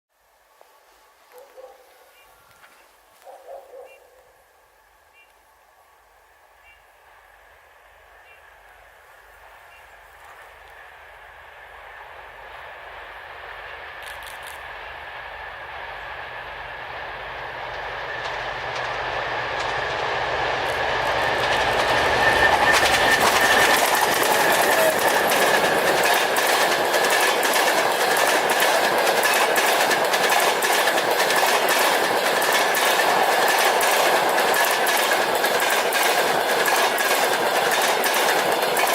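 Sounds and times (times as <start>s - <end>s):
steady high whine: 4.4s - 30.2s
diesel locomotive rumble: 6.5s - 38.9s
train wheels clickety-clack: 12.2s - 38.9s.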